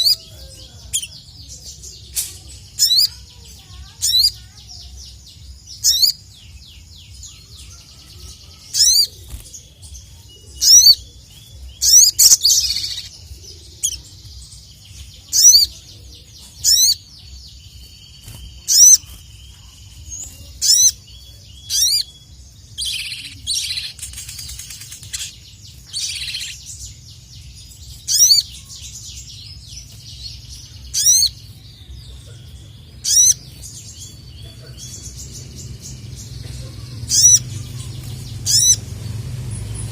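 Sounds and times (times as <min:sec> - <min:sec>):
bird calling with sharp high notes: 0:18.0 - 0:19.9, 0:37.1 - 0:38.8.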